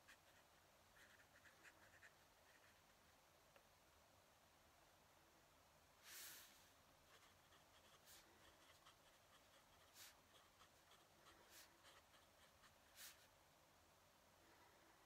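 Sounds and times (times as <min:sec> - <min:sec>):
pen nib scratching paper: 0:00.0 - 0:02.9, 0:07.1 - 0:13.3.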